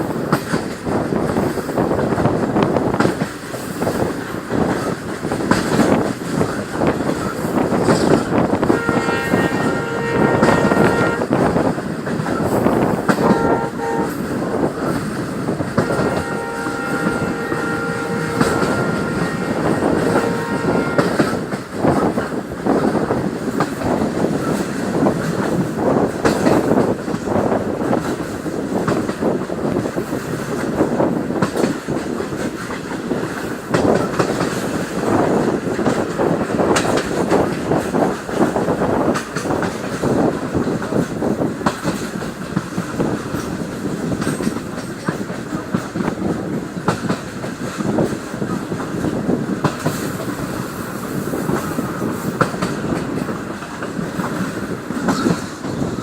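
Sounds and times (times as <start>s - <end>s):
train rumbling along track: 0.0s - 56.0s
train horn: 8.6s - 11.7s, 12.7s - 14.7s, 15.6s - 22.1s.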